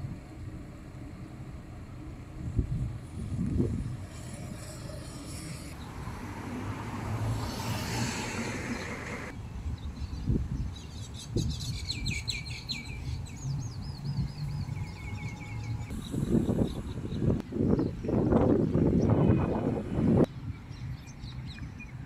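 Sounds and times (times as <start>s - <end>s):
road traffic hiss: 0.0s - 17.7s
small birds chirping and trilling: 8.7s - 19.7s.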